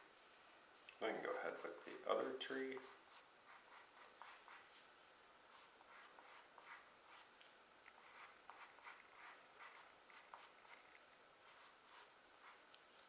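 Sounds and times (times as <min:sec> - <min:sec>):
pencil scratching on paper: 0:01.2 - 0:04.7, 0:05.5 - 0:07.3, 0:08.0 - 0:10.8, 0:11.4 - 0:12.6.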